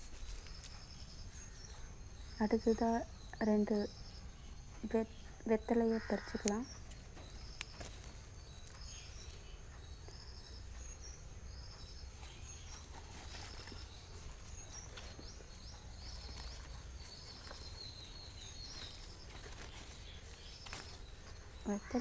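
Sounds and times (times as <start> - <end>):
small bird chirping: 0.0 - 22.0
faint clicks: 4.7 - 22.0.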